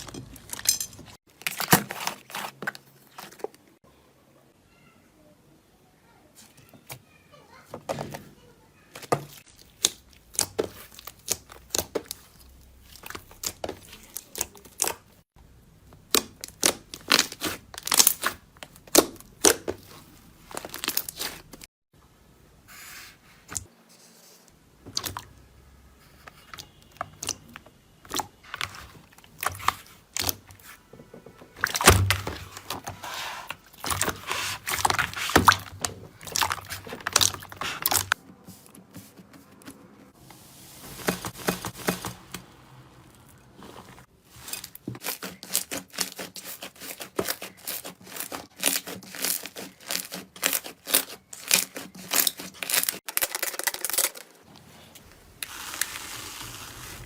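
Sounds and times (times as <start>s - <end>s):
slime crackling and popping: 45.0s - 54.2s.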